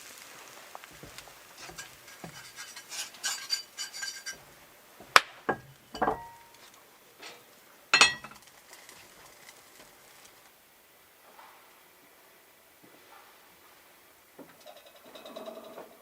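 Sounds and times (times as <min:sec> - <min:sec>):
hard objects clinking: 0:01.0 - 0:04.5, 0:05.5 - 0:06.6, 0:08.0 - 0:08.5.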